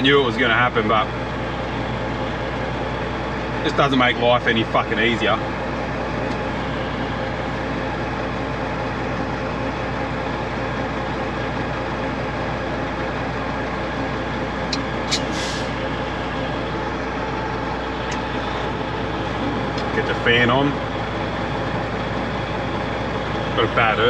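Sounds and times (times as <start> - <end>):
diesel truck engine running: 0.0 - 24.0
short air hiss: 15.1 - 15.7.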